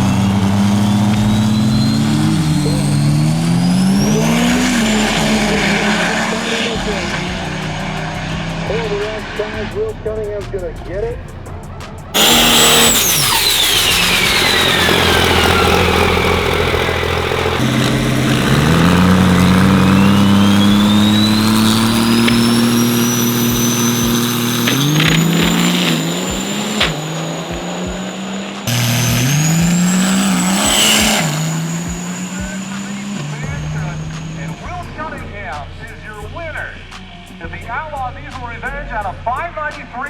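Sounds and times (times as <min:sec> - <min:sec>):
turbo whistle: 0:00.0 - 0:07.0, 0:12.2 - 0:35.2
diesel truck engine accelerating: 0:00.0 - 0:40.0.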